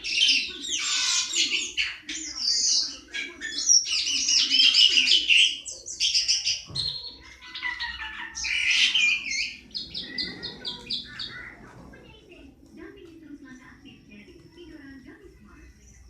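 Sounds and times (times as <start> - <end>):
songbird singing: 0.0 - 11.7.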